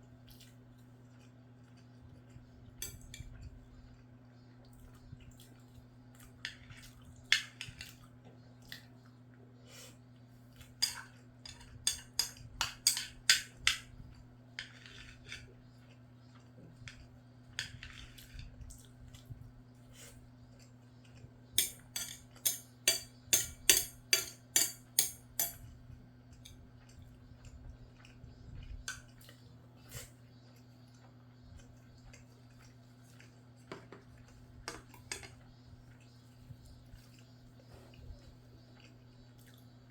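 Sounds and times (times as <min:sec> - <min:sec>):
faint low hum: 0:00.0 - 0:39.9
utensils clinking on a dish: 0:02.8 - 0:03.3, 0:10.8 - 0:13.9, 0:21.6 - 0:25.7.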